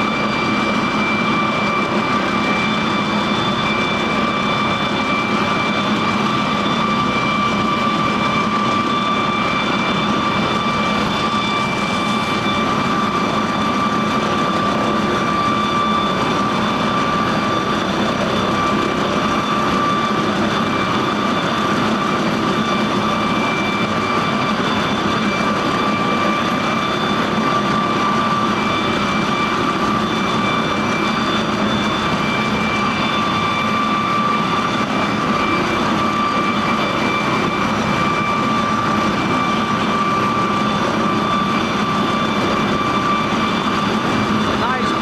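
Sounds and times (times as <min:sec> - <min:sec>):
helicopter turbine engines whining: 0:00.0 - 0:45.0.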